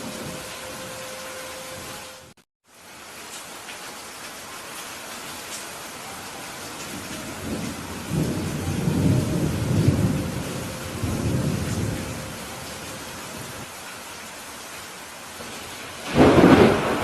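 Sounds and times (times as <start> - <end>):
heavy rain: 0.0 - 17.0
thunder rolling: 6.9 - 13.6, 15.5 - 17.0.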